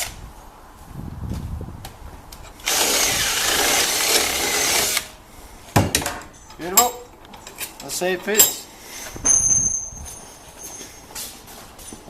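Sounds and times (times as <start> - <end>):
power tool on metal: 2.5 - 5.2.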